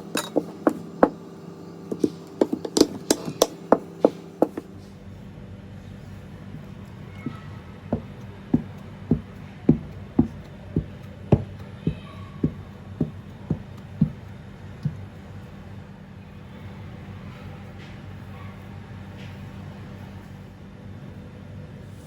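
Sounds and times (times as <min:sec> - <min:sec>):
steady low hum: 0:00.0 - 0:22.0
sharp knocks: 0:08.0 - 0:14.2.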